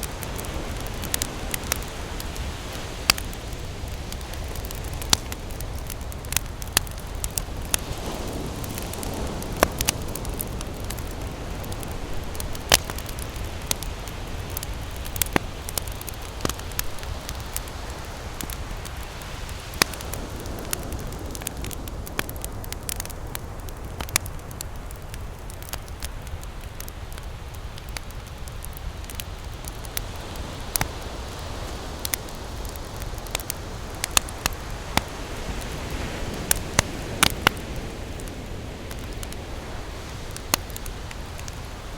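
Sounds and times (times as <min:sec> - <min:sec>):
ocean surf rushing: 0:00.0 - 0:22.0
wave washing in: 0:00.0 - 0:22.4
wood campfire crackling: 0:00.0 - 0:41.9.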